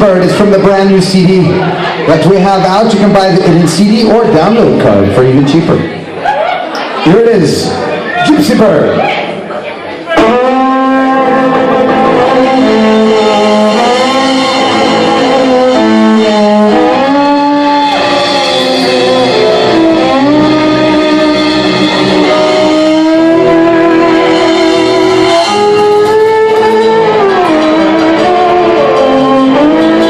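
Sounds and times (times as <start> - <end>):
guitar accompaniment: 0.0 - 30.0
violin melody: 10.2 - 30.0.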